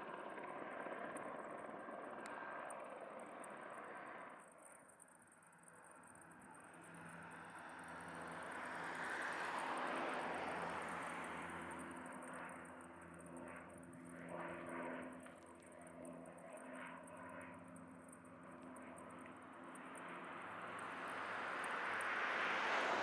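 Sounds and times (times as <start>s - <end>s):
aircraft flying past: 6.7s - 23.0s.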